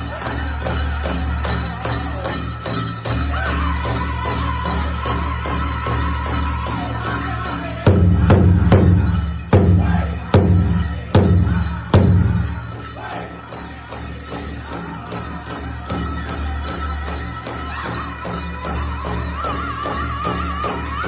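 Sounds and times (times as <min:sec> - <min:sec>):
metal jingles shimmering: 0:00.0 - 0:21.0
drum struck in steady beat: 0:07.8 - 0:13.0.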